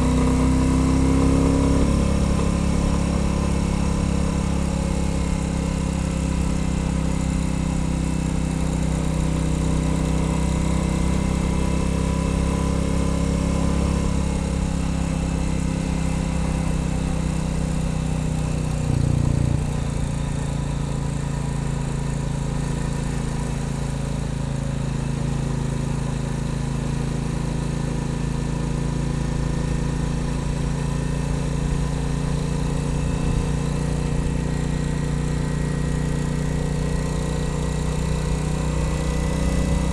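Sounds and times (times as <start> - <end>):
motorcycle engine running: 0.0 - 39.9
road noise: 13.5 - 24.1.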